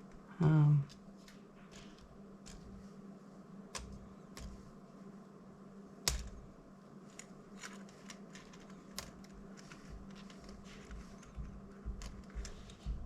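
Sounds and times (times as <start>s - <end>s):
steady low hum: 0.0s - 13.0s
clicks of plastic parts handled: 7.1s - 11.4s.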